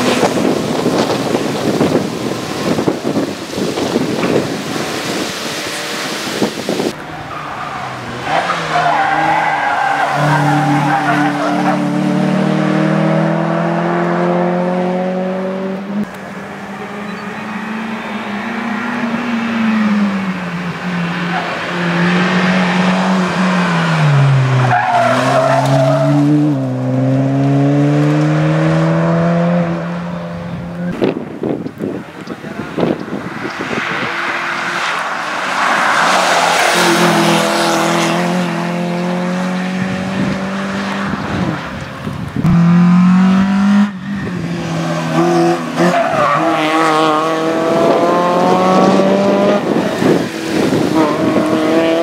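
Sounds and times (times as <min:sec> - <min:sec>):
car engine revving hard: 0:08.0 - 0:16.1, 0:21.6 - 0:30.4, 0:33.7 - 0:41.6, 0:42.4 - 0:52.0.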